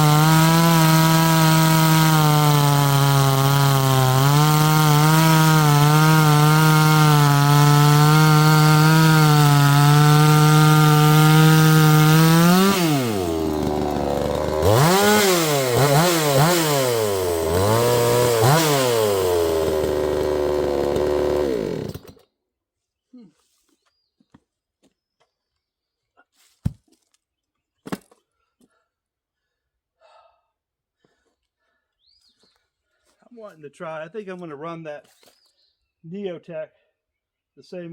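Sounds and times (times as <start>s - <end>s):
chainsaw cutting wood: 0.0s - 22.3s.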